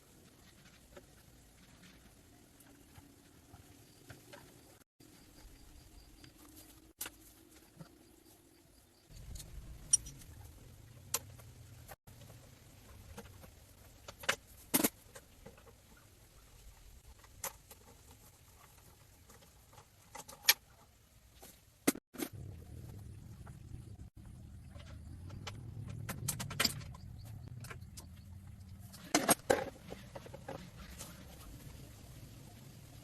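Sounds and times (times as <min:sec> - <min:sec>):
low rumble: 0:22.3 - 0:28.9.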